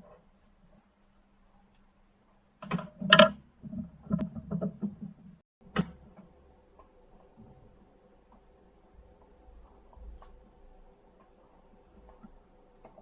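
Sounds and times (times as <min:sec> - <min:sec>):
faint steady hum: 0:00.0 - 0:13.0
clicks and knocks of hard parts: 0:02.6 - 0:07.6.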